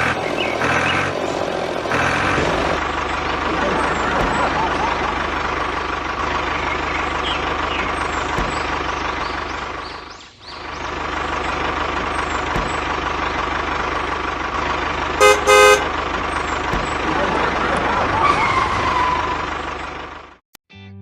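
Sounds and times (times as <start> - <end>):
truck engine running: 0.0 - 20.4
horn toots: 15.2 - 16.0.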